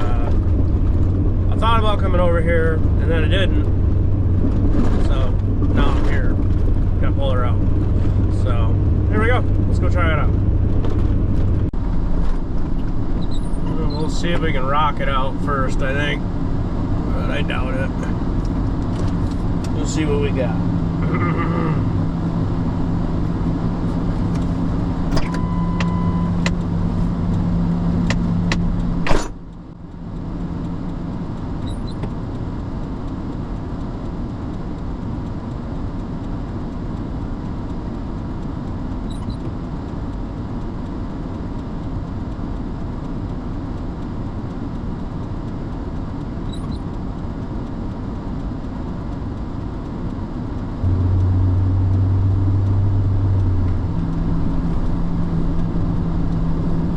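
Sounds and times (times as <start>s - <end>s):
truck engine running: 0.0s - 56.9s
short beep: 25.1s - 26.5s.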